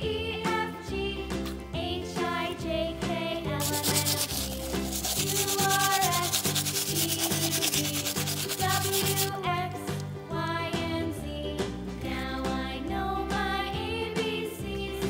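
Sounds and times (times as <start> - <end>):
brush scrubbing toy car: 3.6 - 9.4.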